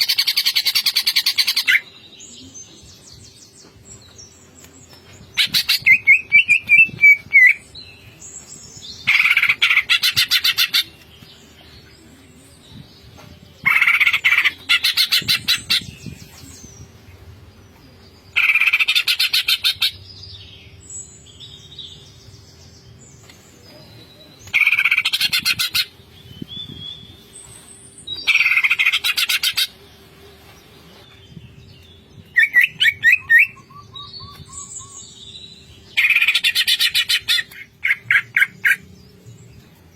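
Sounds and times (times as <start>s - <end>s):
bird chirps and whistles: 32.4s - 35.0s.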